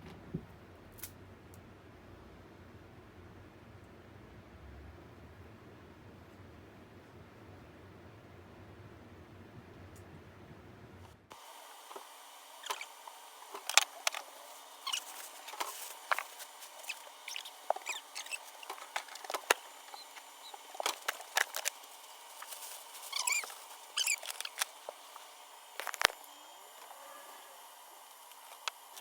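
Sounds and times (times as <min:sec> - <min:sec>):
short squeaks: 0:12.6 - 0:12.9, 0:14.8 - 0:19.2, 0:23.0 - 0:24.7.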